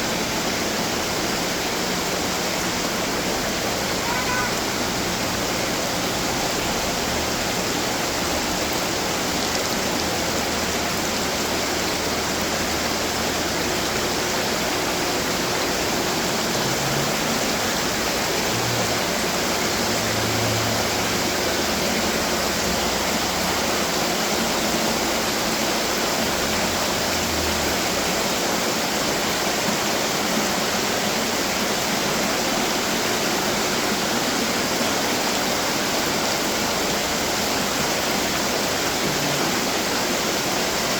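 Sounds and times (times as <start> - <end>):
fountain water splashing: 0.0 - 40.9.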